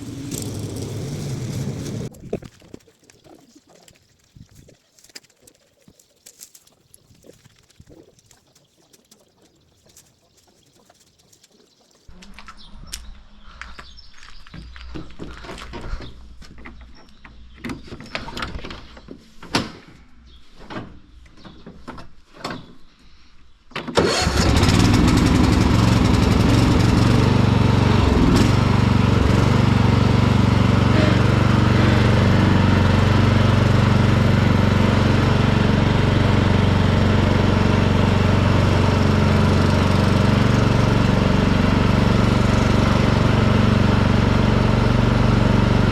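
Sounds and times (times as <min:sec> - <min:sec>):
garden tractor engine: 0:00.0 - 0:03.3, 0:23.9 - 0:45.9.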